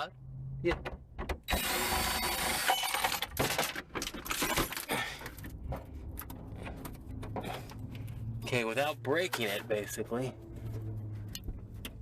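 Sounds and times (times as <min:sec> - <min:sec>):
car parts scraping and rattling: 0:00.6 - 0:12.0
clicks and clatter of parts: 0:02.4 - 0:08.2.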